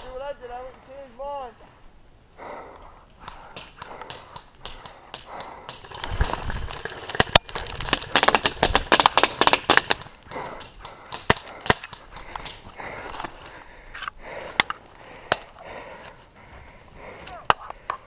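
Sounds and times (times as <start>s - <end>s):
airsoft guns firing: 3.5s - 12.6s.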